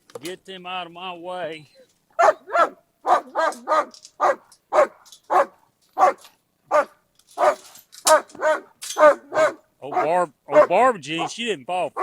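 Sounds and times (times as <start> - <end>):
dog barking: 2.2 - 11.4.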